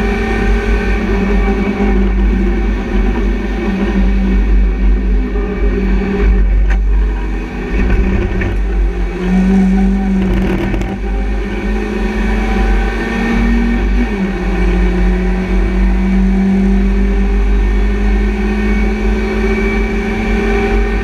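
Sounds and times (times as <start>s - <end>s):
race car engine running hard: 0.0s - 21.0s.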